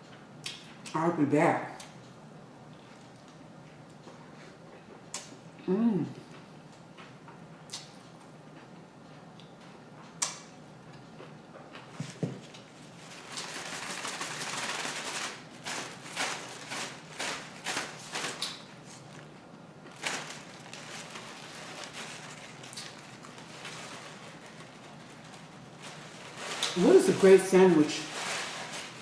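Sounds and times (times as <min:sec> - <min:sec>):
rustling and shuffling: 0:11.8 - 0:29.0.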